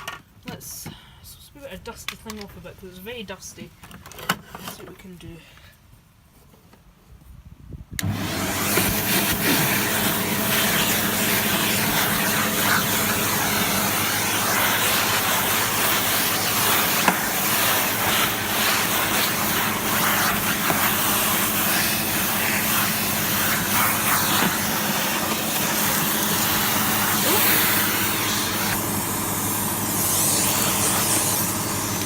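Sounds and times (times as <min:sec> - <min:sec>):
vacuum cleaner running: 0:08.0 - 0:32.0
grit clicking through hose: 0:08.7 - 0:28.8.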